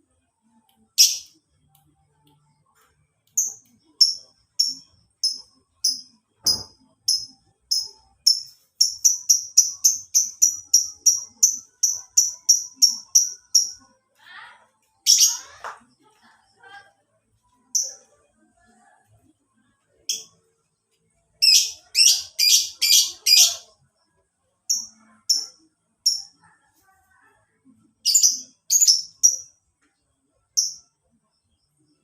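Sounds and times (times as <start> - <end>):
lovebird chirping: 0.4 - 1.4, 3.3 - 14.0, 15.0 - 15.6, 21.4 - 23.8, 24.6 - 26.5, 28.0 - 29.6.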